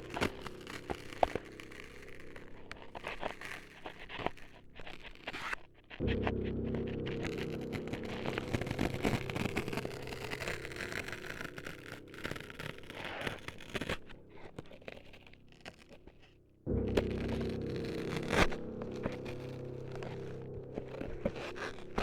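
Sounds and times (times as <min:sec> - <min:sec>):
low steady hum: 0:06.0 - 0:22.0.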